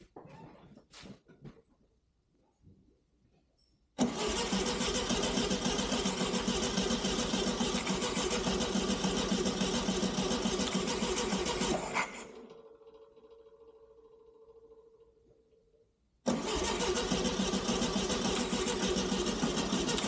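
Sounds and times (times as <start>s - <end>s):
starter motor cranking engine: 4.0s - 14.9s, 16.3s - 20.0s.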